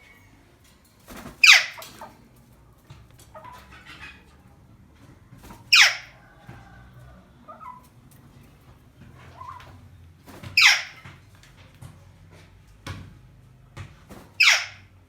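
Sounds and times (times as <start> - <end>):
bird harsh screech: 10.6 - 11.0.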